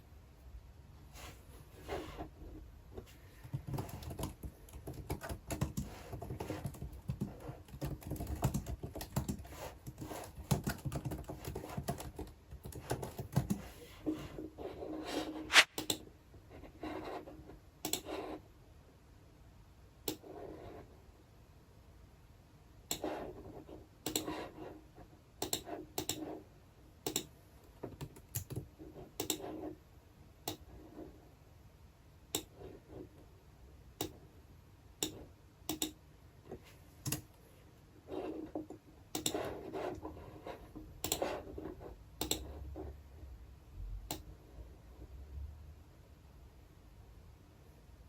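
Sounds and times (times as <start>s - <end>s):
typing on a computer keyboard: 3.3s - 13.7s, 25.4s - 26.3s, 27.0s - 27.3s, 27.9s - 29.4s, 35.0s - 36.0s, 37.0s - 37.3s, 38.6s - 39.5s, 42.2s - 42.5s.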